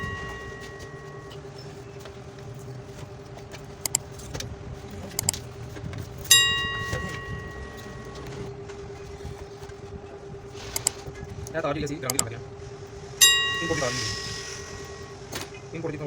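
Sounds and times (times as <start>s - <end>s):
metal clank ringing: 0.0s - 1.4s, 6.3s - 8.4s, 13.2s - 15.2s
steady hum: 0.0s - 16.0s
light metallic clicks: 3.8s - 4.0s, 10.8s - 12.3s.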